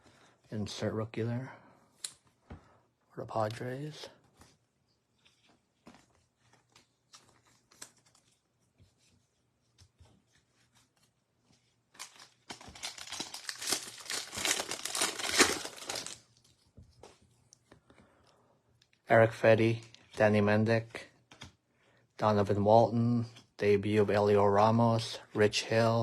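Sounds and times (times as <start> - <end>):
foil wrapper crinkling and tearing: 11.9 - 16.4.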